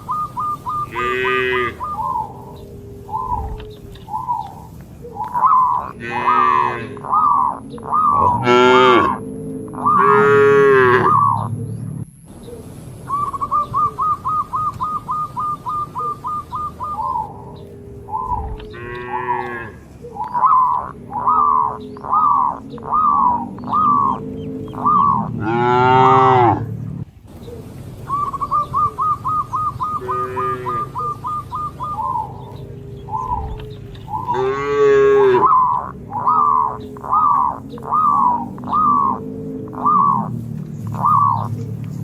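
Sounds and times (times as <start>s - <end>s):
birds chirping high notes: 0.0s - 42.0s
cattle mooing: 0.7s - 4.0s, 5.7s - 11.6s, 17.2s - 27.0s, 29.4s - 41.8s.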